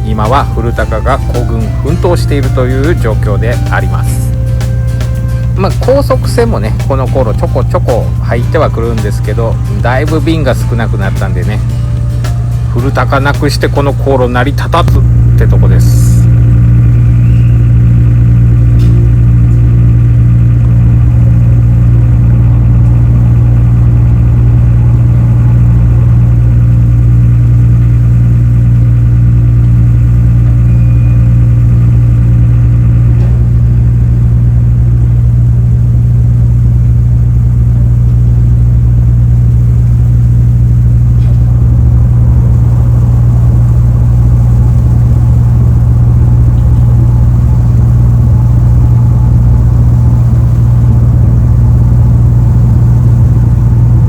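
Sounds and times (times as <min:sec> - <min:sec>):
ferry diesel engines droning: 0:00.0 - 0:54.0.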